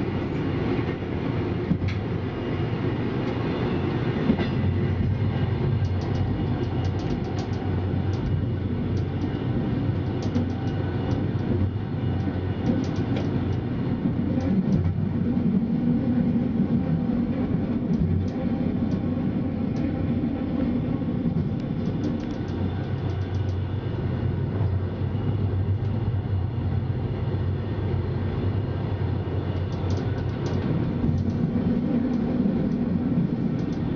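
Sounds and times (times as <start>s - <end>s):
train wheels rumbling on rails: 0.0s - 33.9s
light clicks and rattles: 5.8s - 8.4s, 12.6s - 13.6s, 21.8s - 23.6s, 29.6s - 31.4s, 33.6s - 33.9s.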